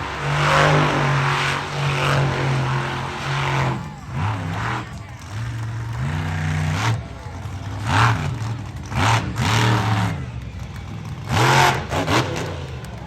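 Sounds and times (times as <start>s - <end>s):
engine idling and revving: 0.0s - 13.0s.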